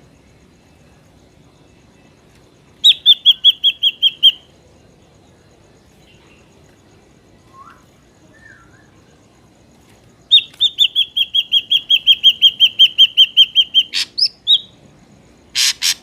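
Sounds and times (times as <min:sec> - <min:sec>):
bird whistling notes: 0:02.8 - 0:04.5, 0:10.3 - 0:14.7.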